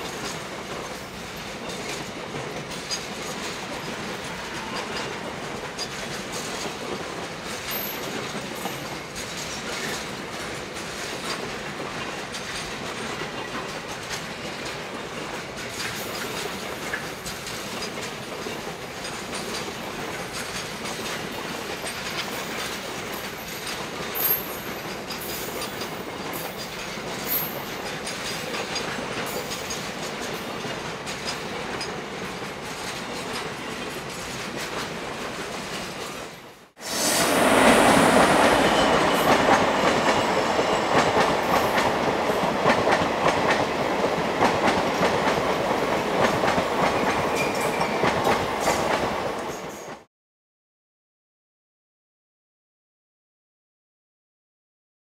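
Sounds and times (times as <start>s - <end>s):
passenger train passing: 0.0s - 50.1s.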